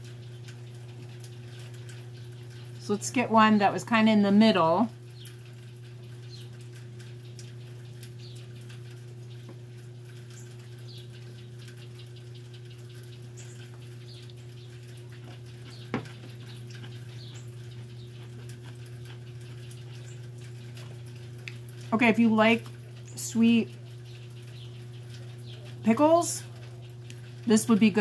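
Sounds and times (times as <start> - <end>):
chewing crunches: 13.0 - 21.9.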